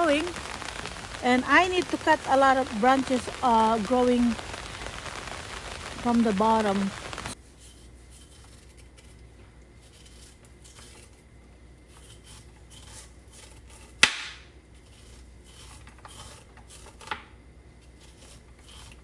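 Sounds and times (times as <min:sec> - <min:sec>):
faint steady hiss: 0:00.0 - 0:07.4.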